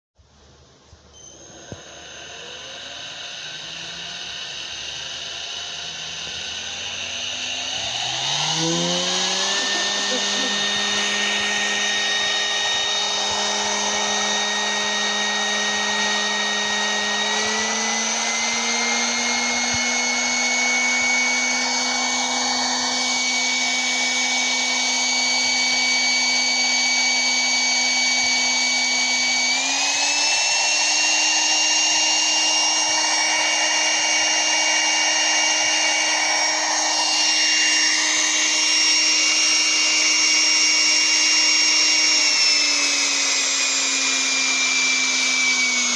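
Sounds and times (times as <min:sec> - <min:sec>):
drill motor whining: 0:01.0 - 0:45.9.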